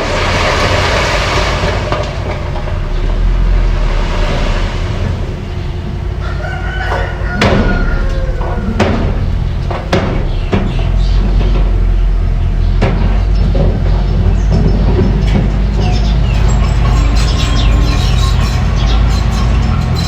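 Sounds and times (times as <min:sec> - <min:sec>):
bulldozer engine rumbling: 0:00.0 - 0:20.0
sharp knocks: 0:06.8 - 0:15.7
high squeal: 0:15.8 - 0:20.0.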